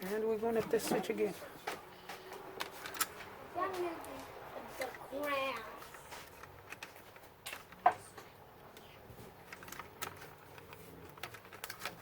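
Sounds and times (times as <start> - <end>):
laptop parts clicking and tapping: 1.7 - 3.4, 5.9 - 12.0.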